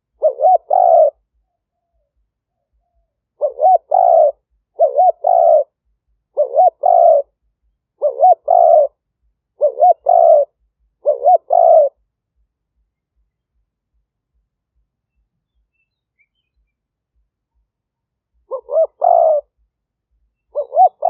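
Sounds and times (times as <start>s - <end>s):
dove cooing: 0.0s - 7.4s, 8.0s - 9.0s, 9.6s - 12.0s, 18.4s - 19.6s, 20.4s - 21.0s.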